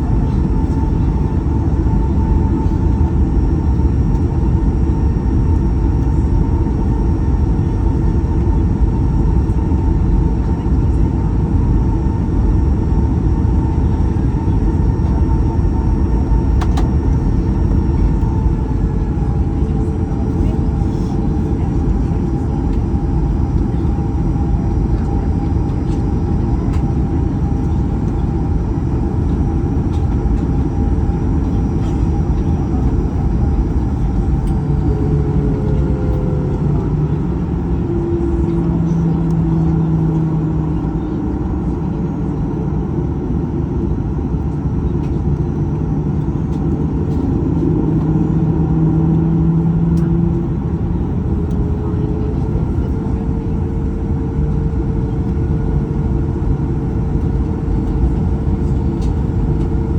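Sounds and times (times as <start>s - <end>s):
low hum: 0.0s - 43.0s
jet cabin rumble: 0.0s - 59.9s.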